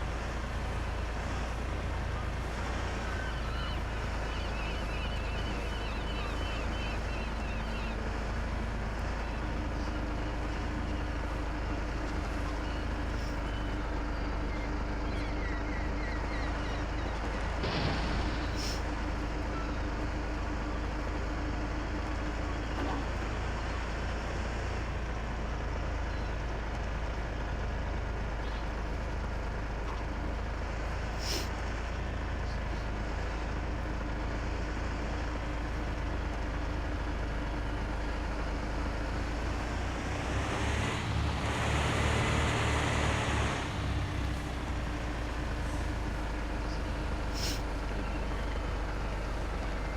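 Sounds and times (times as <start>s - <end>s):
road noise: 0.0s - 49.9s
truck engine running: 0.0s - 49.9s
loud rushing hiss: 47.4s - 47.6s.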